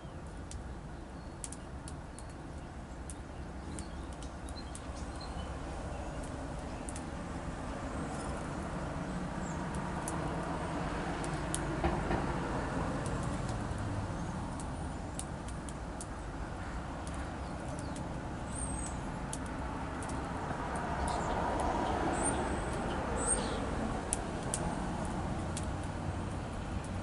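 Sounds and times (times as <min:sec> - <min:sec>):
distant traffic rumble: 0:00.0 - 0:27.0
songbirds chirping: 0:00.0 - 0:27.0
light clicks: 0:01.4 - 0:02.4, 0:24.1 - 0:25.9.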